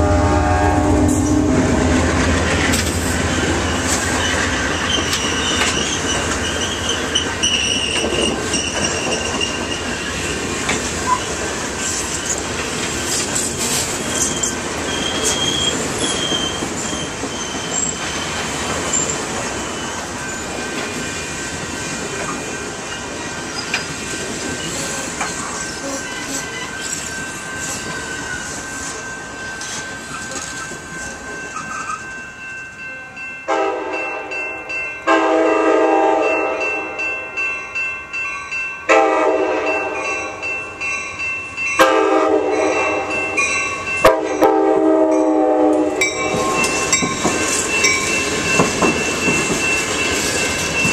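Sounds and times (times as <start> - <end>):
train rolling noise: 0.0 - 50.9
train wheels squealing: 3.0 - 32.2.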